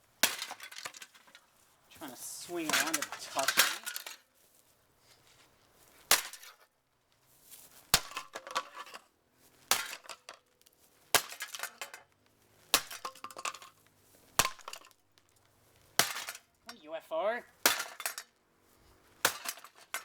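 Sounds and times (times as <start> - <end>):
broken parts clattering: 0.2 - 1.5, 2.5 - 4.3, 11.3 - 12.1, 17.7 - 18.4, 19.3 - 20.0.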